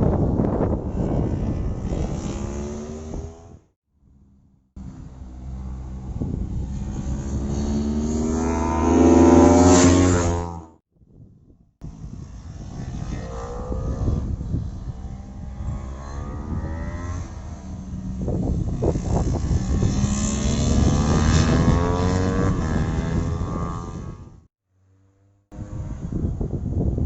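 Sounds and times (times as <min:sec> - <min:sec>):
racing motorcycle engines revving: 0:00.1 - 0:10.8, 0:11.9 - 0:26.7.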